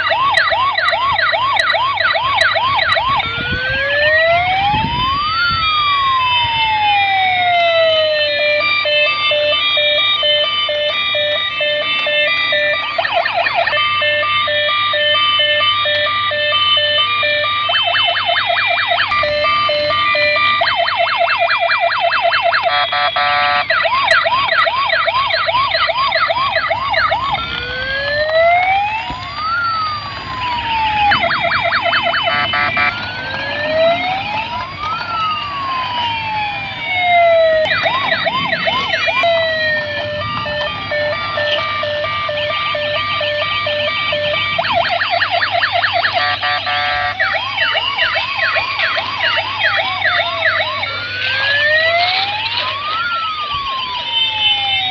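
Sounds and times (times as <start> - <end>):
toy electronic sirens: 0.0 - 54.9.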